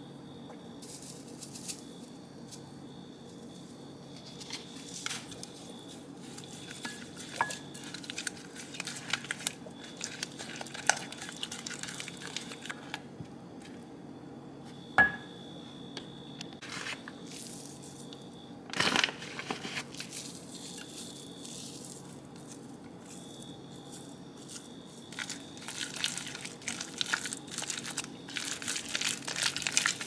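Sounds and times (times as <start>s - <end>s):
steady low hum: 0.0s - 30.0s
crinkling and squishing: 0.8s - 13.8s, 16.6s - 30.0s
utensils tapping bowl and dishes: 6.8s - 7.6s.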